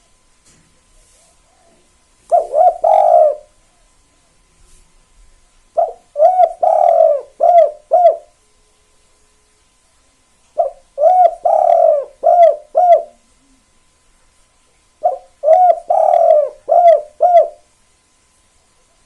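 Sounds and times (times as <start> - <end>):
dove cooing: 1.1 - 3.9, 5.8 - 8.4, 10.6 - 13.7, 15.0 - 17.7.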